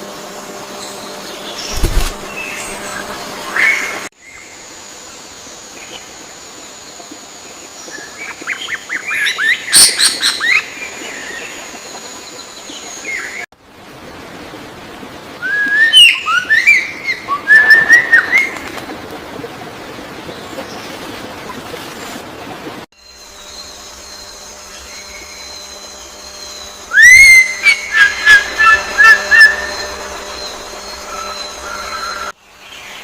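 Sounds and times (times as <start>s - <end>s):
birds chirping: 23.0s - 33.0s
steady high tone: 23.3s - 32.4s.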